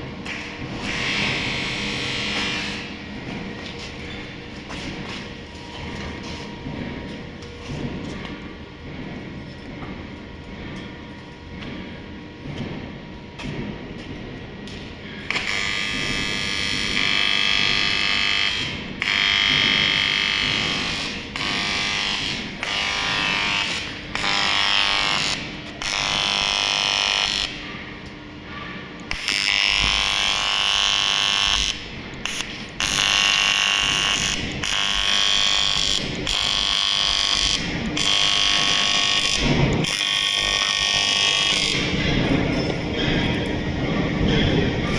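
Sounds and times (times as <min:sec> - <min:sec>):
welding arc buzzing: 0:00.2 - 0:03.8, 0:15.3 - 0:27.7, 0:29.1 - 0:44.9.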